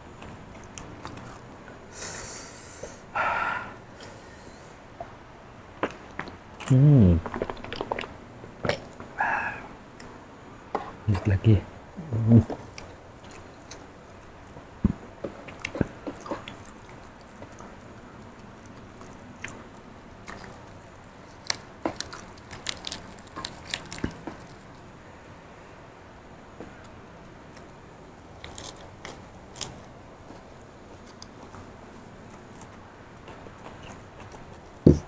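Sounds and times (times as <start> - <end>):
person chewing crunchy vegetables: 0.1 - 1.5, 5.8 - 9.2, 15.2 - 24.9, 27.5 - 35.0
wet mouth clicks and smacks: 7.2 - 8.1.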